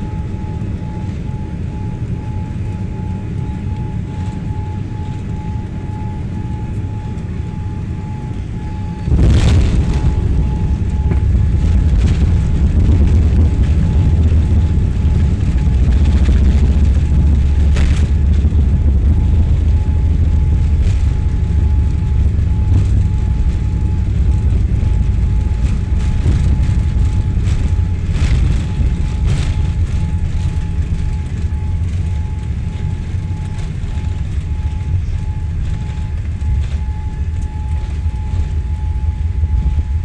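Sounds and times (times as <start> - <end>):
airliner cabin rumble: 0.0 - 40.0.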